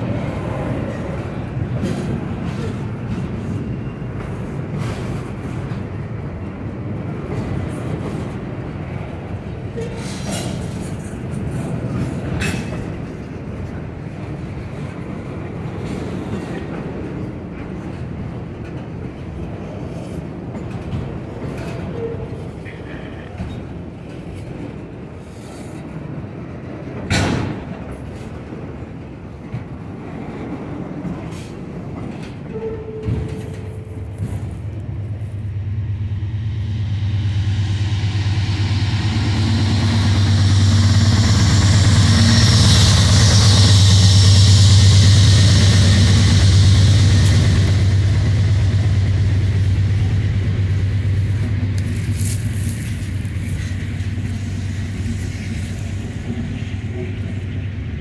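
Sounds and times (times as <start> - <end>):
train cars clanking: 0.0 - 58.0
wheel-on-rail noise: 0.0 - 58.0
low engine drone: 34.0 - 58.0.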